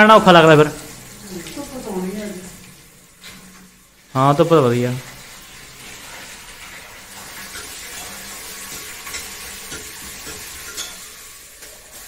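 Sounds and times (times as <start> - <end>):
food sizzling in a pot: 0.0 - 12.0
utensils clinking: 6.2 - 12.0.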